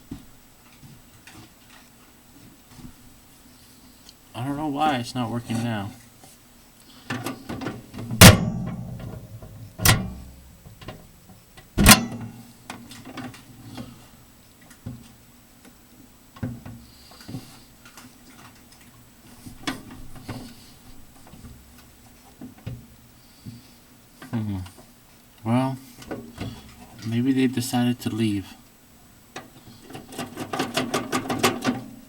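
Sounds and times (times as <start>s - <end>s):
microwave door latch clunks: 8.2s - 9.2s, 9.8s - 10.2s, 11.8s - 12.2s.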